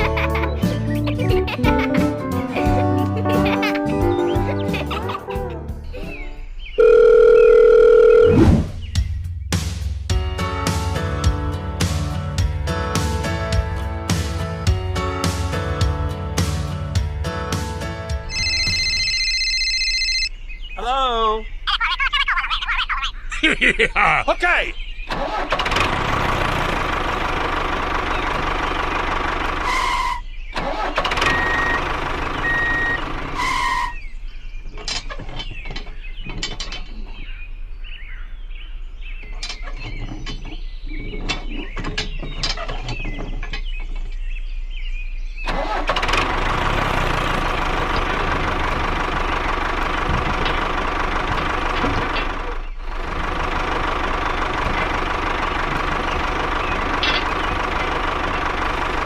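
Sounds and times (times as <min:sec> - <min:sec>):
small engine humming: 0:25.2 - 0:33.8, 0:45.5 - 0:59.0
clicks and clattering: 0:34.7 - 0:37.2, 0:39.2 - 0:44.2, 0:56.8 - 0:57.9.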